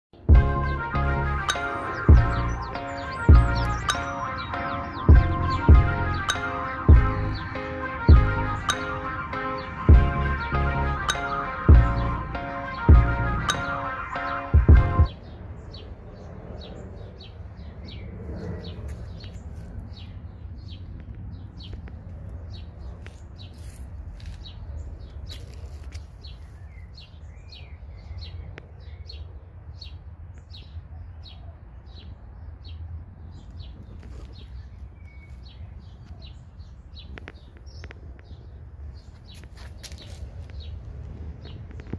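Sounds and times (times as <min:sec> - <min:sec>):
small birds chirping: 0:00.2 - 0:10.5, 0:11.1 - 0:41.9
low rumble: 0:05.0 - 0:06.3.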